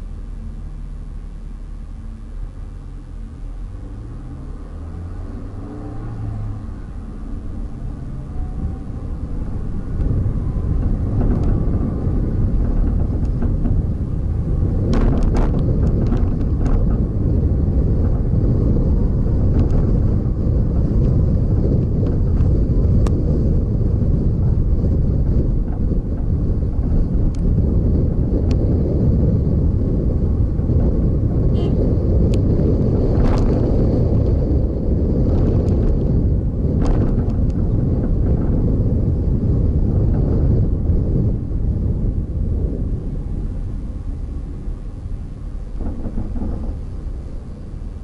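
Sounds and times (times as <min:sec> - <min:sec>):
vehicle road noise rumble: 0:00.0 - 0:48.0
wind buffeting microphone: 0:03.0 - 0:48.0.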